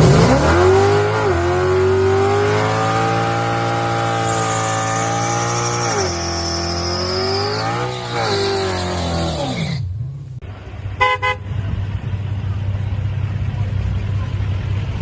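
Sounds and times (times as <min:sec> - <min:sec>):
drag car engine at full throttle: 0:00.0 - 0:15.0.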